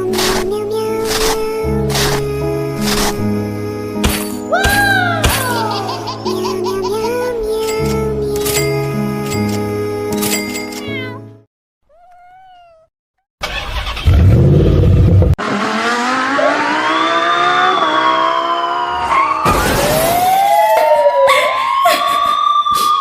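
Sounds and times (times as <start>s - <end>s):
wailing tones: 16.2s - 23.0s.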